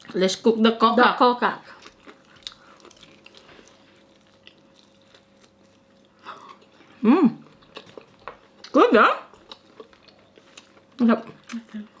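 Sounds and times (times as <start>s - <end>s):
chewing with mouth clicks: 1.7s - 12.0s
person humming mmm: 6.3s - 7.4s.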